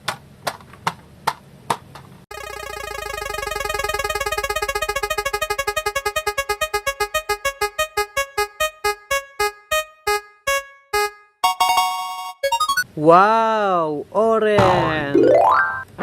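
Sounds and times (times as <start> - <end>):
spinning wheel electronic notes: 2.3 - 12.8, 15.2 - 15.9.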